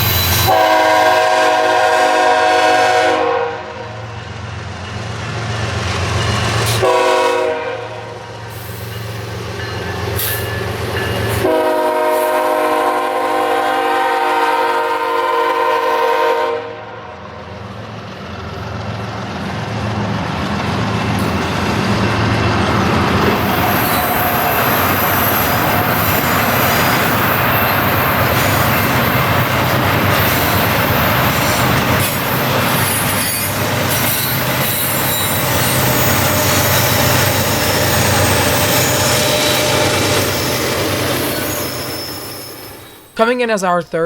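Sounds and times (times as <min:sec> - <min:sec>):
high wheel squeal: 0:00.0 - 0:00.5, 0:22.6 - 0:29.1, 0:32.0 - 0:43.2
train wheels rumbling on rail: 0:00.0 - 0:43.2.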